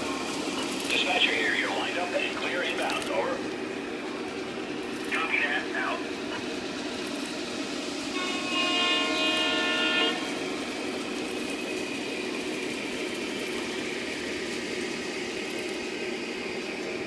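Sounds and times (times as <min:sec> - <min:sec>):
model train running on track: 0:00.0 - 0:17.0
toy train horn: 0:08.1 - 0:10.4.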